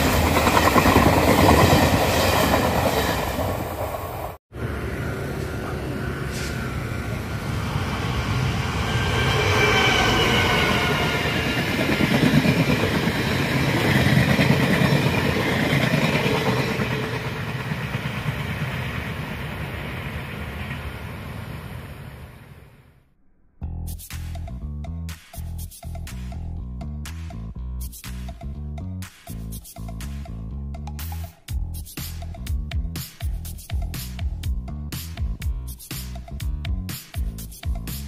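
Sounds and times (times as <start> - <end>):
passenger train rumbling past: 0.0 - 22.8.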